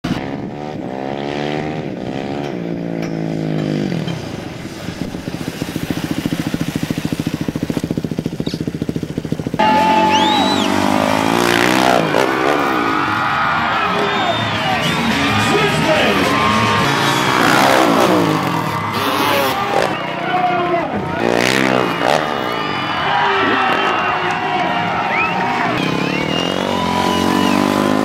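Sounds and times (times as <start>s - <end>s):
dirt bike engine revving: 0.1s - 28.0s
loud music: 9.6s - 19.3s.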